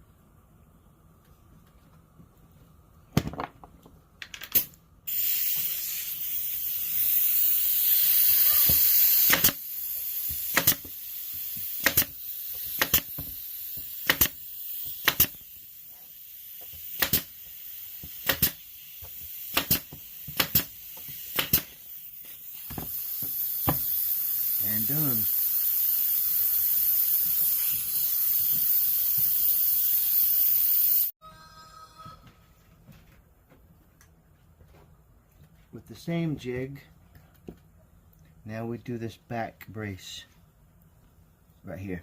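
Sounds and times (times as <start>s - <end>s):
pneumatic nailer firing: 4.5s - 15.7s, 16.5s - 21.9s, 22.6s - 24.4s
compressed air hissing: 5.1s - 31.1s.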